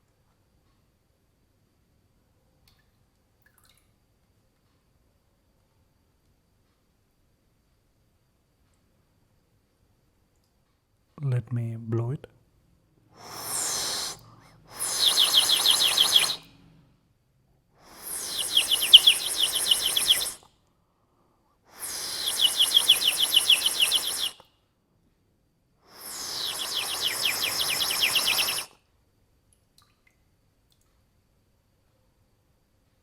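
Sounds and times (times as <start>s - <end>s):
water bird whistle warbling: 13.2s - 16.5s, 17.9s - 20.4s, 21.8s - 24.4s, 25.9s - 28.7s.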